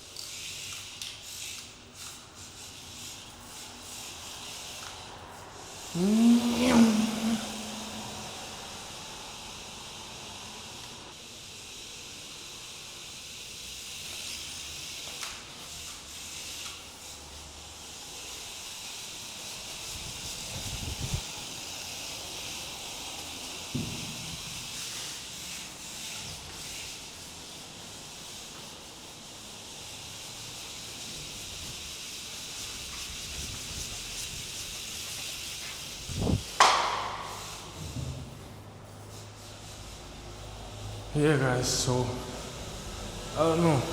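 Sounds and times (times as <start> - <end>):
mini rc car motor hissing: 0.0 - 37.8
knocks on hard floor: 23.7 - 24.3.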